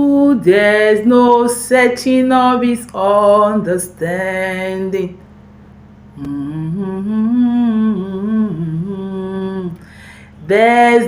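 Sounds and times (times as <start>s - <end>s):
person humming a slow melody: 6.1s - 9.9s
person singing: 6.2s - 9.8s.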